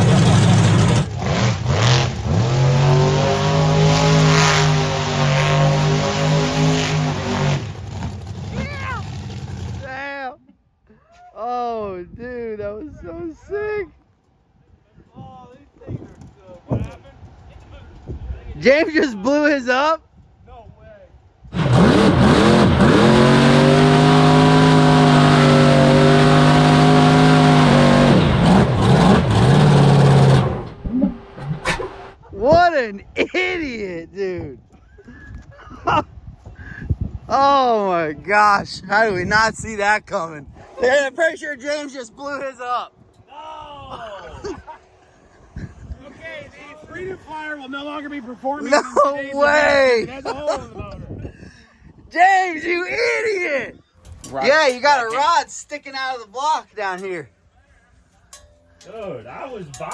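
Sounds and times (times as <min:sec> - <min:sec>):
truck engine revving: 0:00.0 - 0:09.9, 0:21.5 - 0:32.2.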